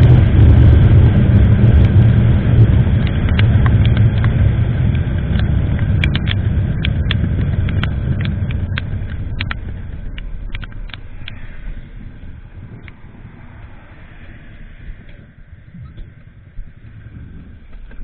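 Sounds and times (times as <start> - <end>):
motorcycle engine rumble: 0.0 - 18.0
wind noise: 0.0 - 18.0
sharp ticks: 3.0 - 17.0.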